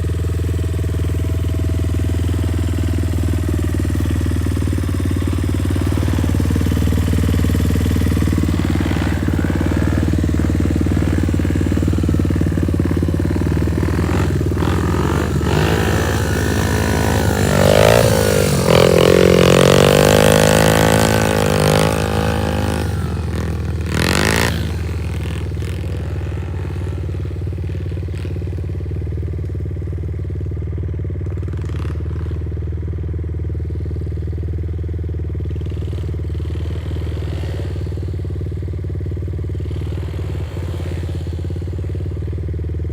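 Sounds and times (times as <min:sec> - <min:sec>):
small motorbike engine revving: 0:00.0 - 0:30.1, 0:33.5 - 0:42.9.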